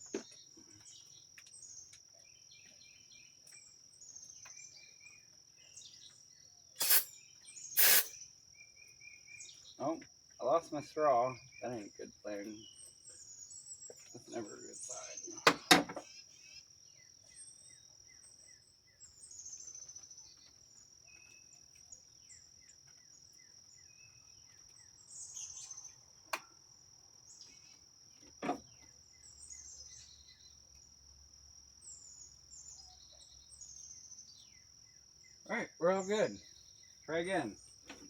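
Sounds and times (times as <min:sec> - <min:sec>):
birds chirping: 0:00.0 - 0:26.2, 0:27.2 - 0:31.0, 0:31.8 - 0:38.0
high insect trill: 0:06.6 - 0:20.1, 0:29.2 - 0:37.6.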